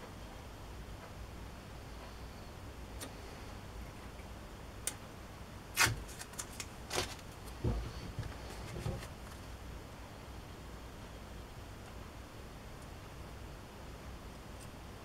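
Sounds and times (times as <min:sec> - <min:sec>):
masking tape scraping rustles: 0:05.8 - 0:09.5.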